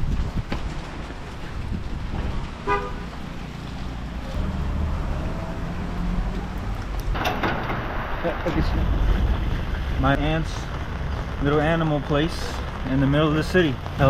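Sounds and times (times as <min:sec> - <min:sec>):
road traffic rumble: 0:00.0 - 0:14.0
vehicle horn toot: 0:02.6 - 0:03.0
burst of noise: 0:07.1 - 0:14.0.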